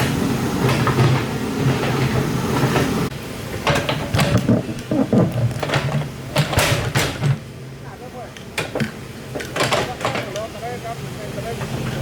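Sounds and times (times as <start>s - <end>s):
knocks and clatter: 0.0s - 7.5s, 8.5s - 10.5s
excavator diesel engine running: 0.0s - 12.0s.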